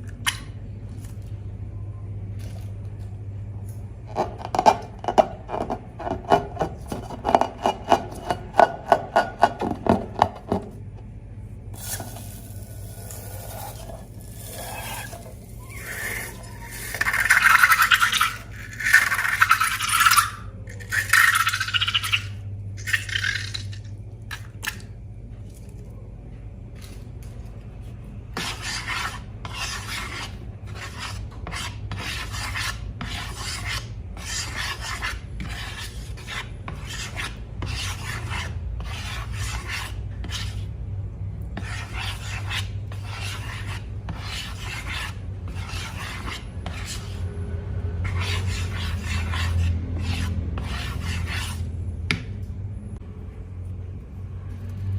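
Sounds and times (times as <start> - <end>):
slime scraping in a container: 11.8 - 23.6.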